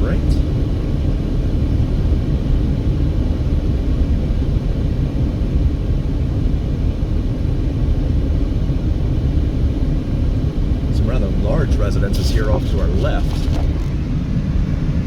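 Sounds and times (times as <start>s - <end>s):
car engine and tyre noise: 10.2s - 15.0s.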